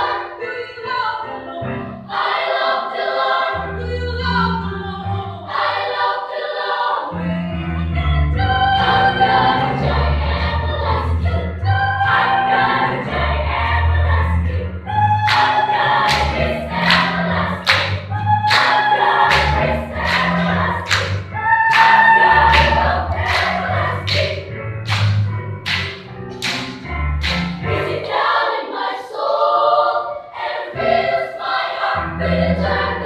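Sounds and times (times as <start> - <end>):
children's choir singing: 0.0 - 7.4, 8.2 - 24.5, 27.6 - 33.0
sharp percussive taps: 15.3 - 27.6.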